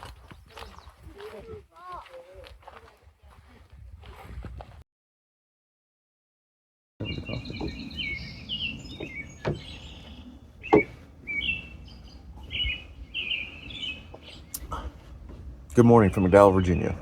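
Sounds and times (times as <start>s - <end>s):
songbirds chirping: 0.0s - 3.4s, 7.0s - 17.0s
sharp knocks: 7.0s - 8.2s, 8.9s - 9.8s, 10.6s - 11.3s
low background rumble: 7.0s - 17.0s.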